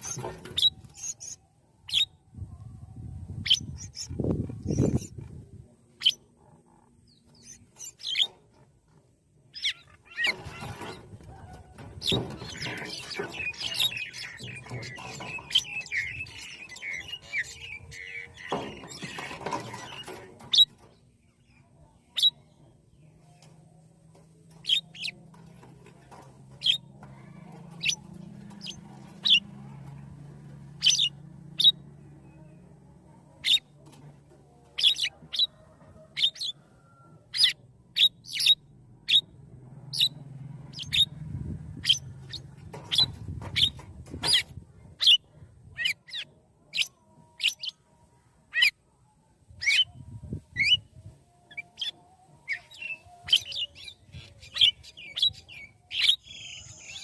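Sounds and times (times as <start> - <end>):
rapid chattering bird calls: 12.0 - 20.7, 25.9 - 29.5.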